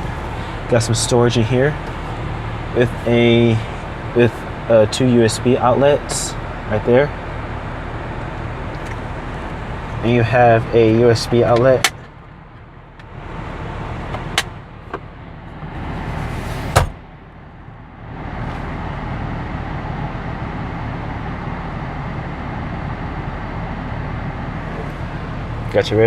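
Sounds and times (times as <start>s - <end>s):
car cabin hum and rushing: 0.0s - 26.0s
sharp clicks of interior parts: 8.7s - 9.1s, 10.8s - 13.2s, 14.1s - 15.1s.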